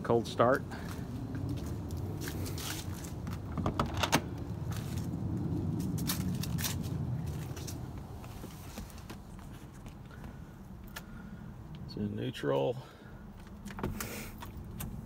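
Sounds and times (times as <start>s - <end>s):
low rumble: 0.4s - 8.6s.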